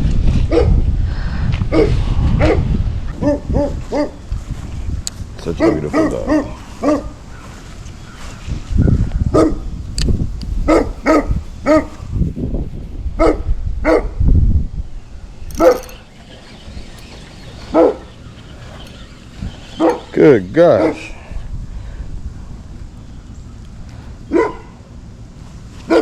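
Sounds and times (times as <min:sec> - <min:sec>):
dog barking: 0:00.5 - 0:00.8, 0:05.6 - 0:07.1, 0:24.3 - 0:24.7.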